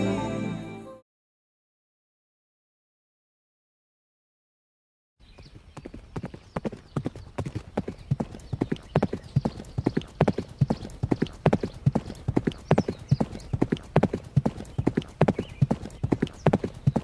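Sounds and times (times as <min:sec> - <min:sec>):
horse hooves clip-clopping: 0:05.4 - 0:17.0.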